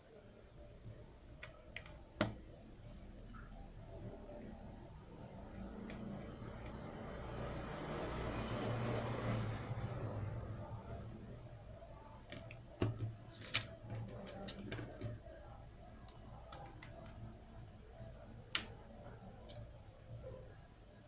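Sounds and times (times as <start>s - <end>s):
faint low hum: 0.0s - 21.0s
small tools clicking and tapping: 12.3s - 15.2s.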